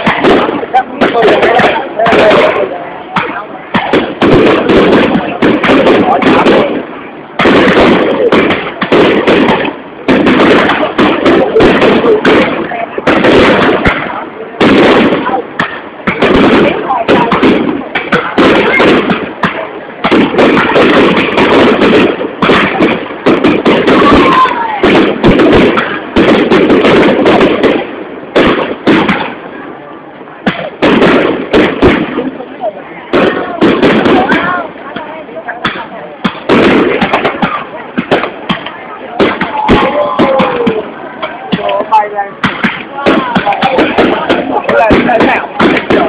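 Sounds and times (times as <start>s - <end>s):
firework crackling pops: 0.0s - 29.7s, 30.4s - 46.0s
firework shells booming: 0.0s - 46.0s.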